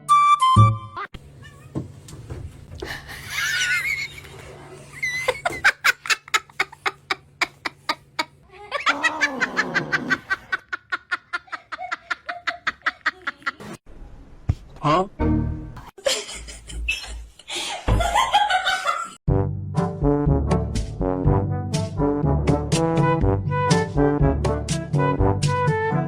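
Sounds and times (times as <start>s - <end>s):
person laughing: 2.8s - 13.8s.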